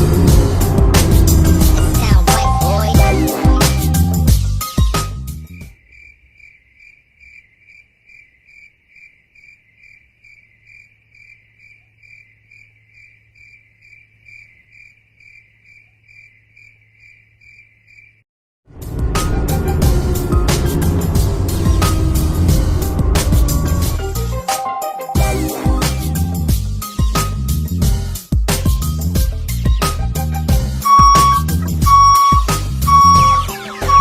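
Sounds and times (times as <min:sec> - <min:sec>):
music: 0:00.0 - 0:05.7, 0:18.8 - 0:34.0
cricket chirping: 0:05.5 - 0:18.2.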